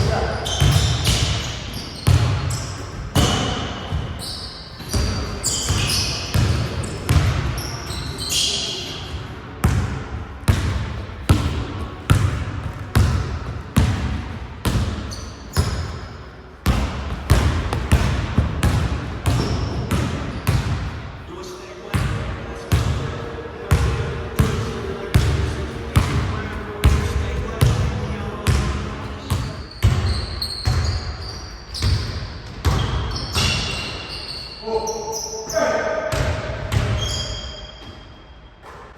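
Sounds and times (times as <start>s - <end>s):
basketball bouncing on gym floor: 0.0s - 8.2s, 9.0s - 21.1s, 21.9s - 33.9s, 36.1s - 37.4s
high squeaks: 4.2s - 7.0s.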